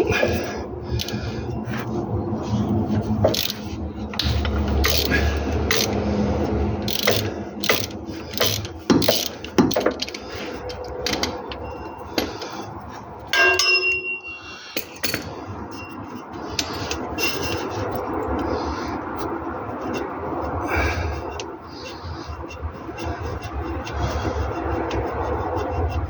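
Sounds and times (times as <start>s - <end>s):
hand tools clicking on metal: 3.1s - 6.1s, 6.8s - 12.6s, 16.5s - 18.5s
ringing metal clink: 13.3s - 15.9s.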